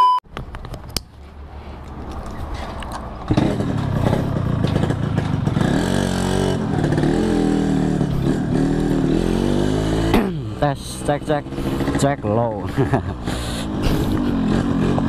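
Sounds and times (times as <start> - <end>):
two-stroke engine revving: 3.3 - 15.0.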